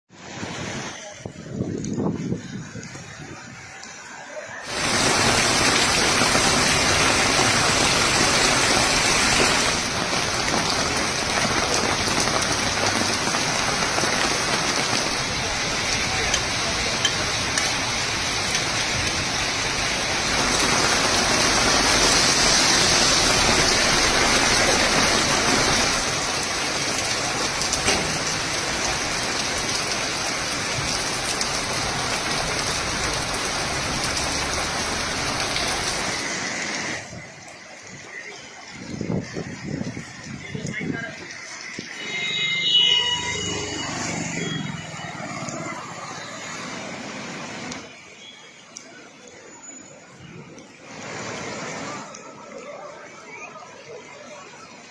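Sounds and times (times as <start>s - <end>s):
heavy rain pouring: 0.1s - 54.9s.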